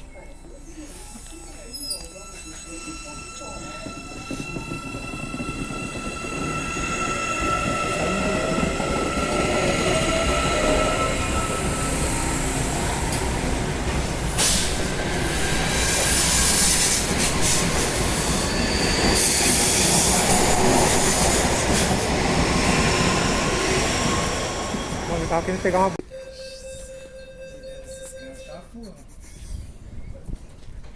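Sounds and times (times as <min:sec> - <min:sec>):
train wheel and rail noise: 0:00.0 - 0:30.9
high-pitched wheel squeal: 0:01.6 - 0:12.4.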